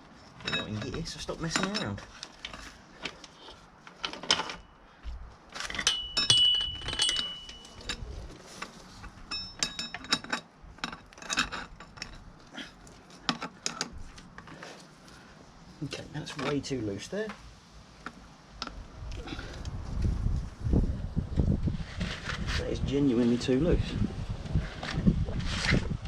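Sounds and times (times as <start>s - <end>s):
metal chain clinking and rattling: 0.2s - 4.8s, 5.6s - 8.3s, 8.9s - 14.6s
short metallic rings: 5.7s - 8.2s, 9.1s - 10.5s.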